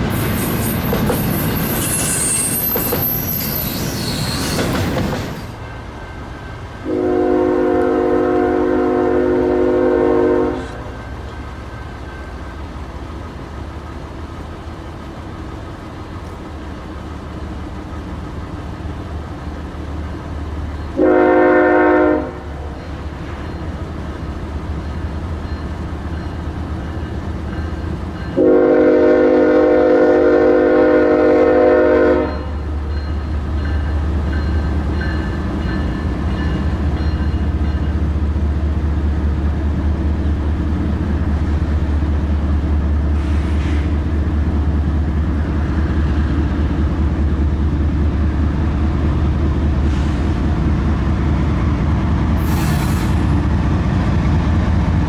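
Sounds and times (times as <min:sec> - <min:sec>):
diesel locomotive rumble: 0:00.0 - 0:55.0
train air horn blasts: 0:06.8 - 0:11.0, 0:21.0 - 0:22.5, 0:28.4 - 0:32.6, 0:43.2 - 0:44.0.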